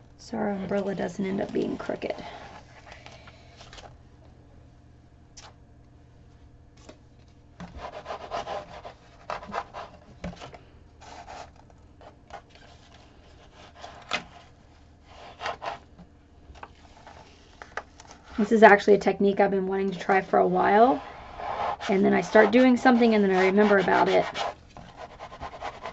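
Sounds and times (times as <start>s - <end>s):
vinyl rubbing on canvas: 7.7s - 10.1s, 20.0s - 25.9s.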